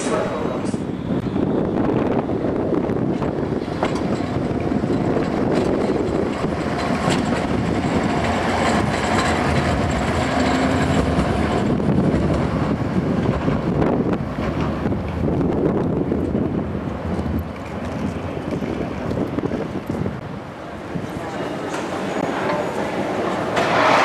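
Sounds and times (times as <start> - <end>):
high squeal of wheels or brakes: 0.0 - 2.4
train wheels rumbling on rails: 0.0 - 24.0.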